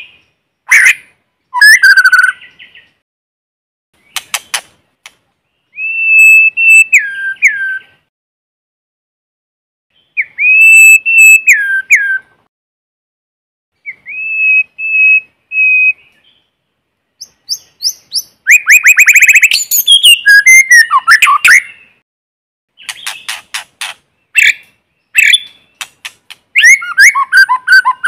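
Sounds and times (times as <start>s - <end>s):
bird singing whistled notes and trills: 0.0s - 3.0s, 5.4s - 8.1s, 9.9s - 12.4s, 13.8s - 22.0s, 22.7s - 28.0s.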